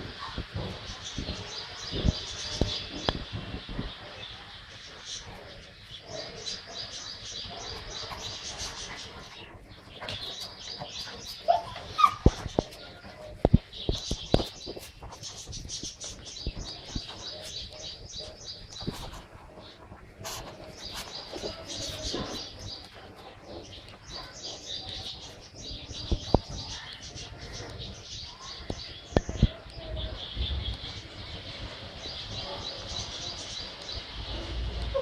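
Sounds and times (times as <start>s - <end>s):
puppies chirping: 6.5s - 30.3s.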